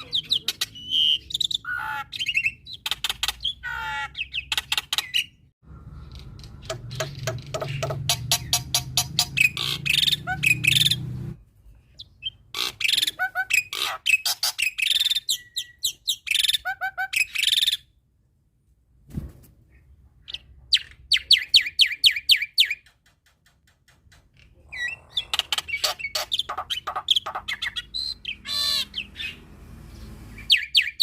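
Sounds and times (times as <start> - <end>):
starling singing: 6.1 - 11.3, 24.7 - 29.5, 30.3 - 31.0.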